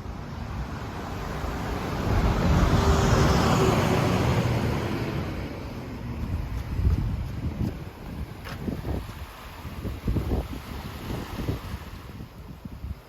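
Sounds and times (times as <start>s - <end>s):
road vehicle passing by: 0.0s - 7.4s.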